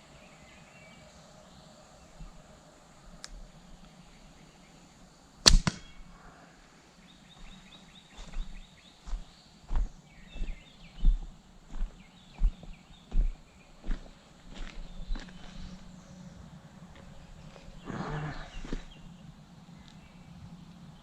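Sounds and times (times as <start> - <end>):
birds chirping faintly: 0.0 - 21.0
slingshot snap: 5.5 - 6.0.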